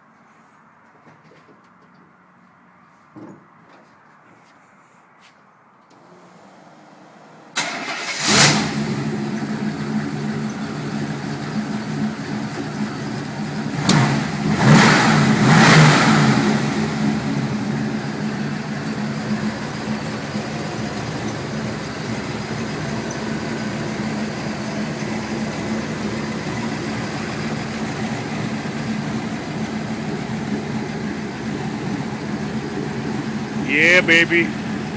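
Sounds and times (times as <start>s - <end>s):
engine cranking and starting: 7.5s - 11.8s
engine idling: 7.6s - 34.9s
engine revving: 7.6s - 34.9s.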